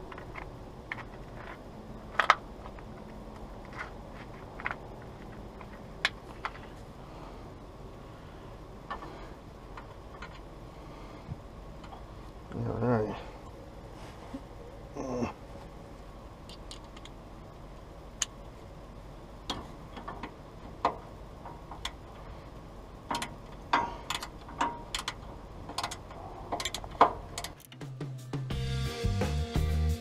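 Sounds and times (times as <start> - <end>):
music: 27.6 - 30.0.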